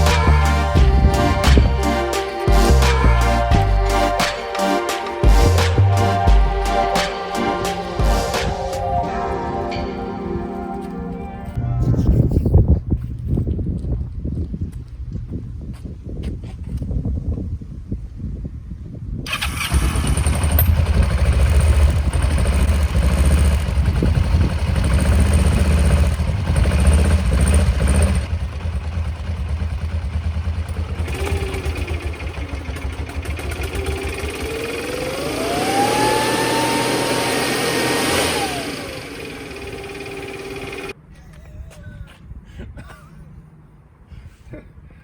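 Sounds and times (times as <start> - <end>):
motorcycle engine rumbling: 0.0 - 15.5, 19.3 - 41.0
leaf blower whining: 30.7 - 41.0.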